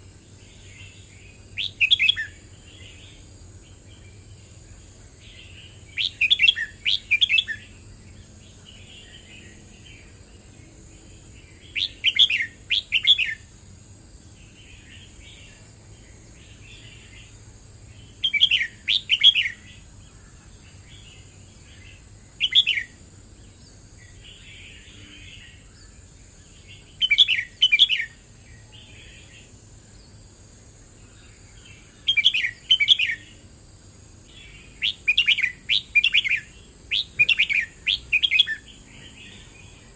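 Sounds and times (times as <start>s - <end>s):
bird singing short phrases: 0.5s - 4.4s, 5.2s - 10.1s, 11.2s - 13.5s, 14.4s - 23.0s, 26.6s - 30.2s, 31.6s - 33.4s, 34.3s - 39.9s.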